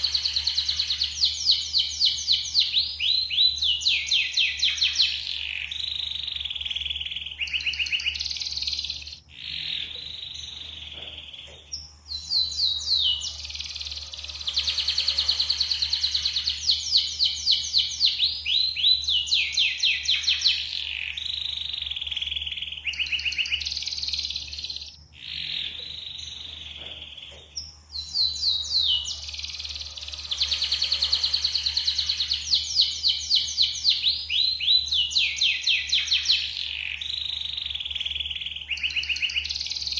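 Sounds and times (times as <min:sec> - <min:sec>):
canary singing trills: 0:00.0 - 0:39.9
low hum: 0:23.8 - 0:34.3.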